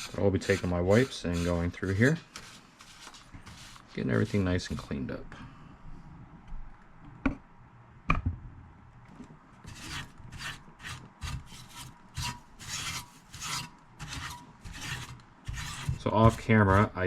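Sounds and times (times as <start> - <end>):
wipe scratching inside metal chassis: 0.0 - 4.9, 9.7 - 17.0.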